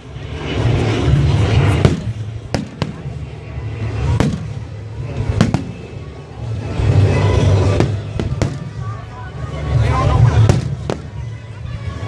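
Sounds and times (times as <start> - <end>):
distant explosions rumbling: 1.0 - 9.0, 10.2 - 11.2
fireworks bangs: 1.6 - 3.2, 3.9 - 6.0, 7.0 - 9.0, 10.2 - 11.4.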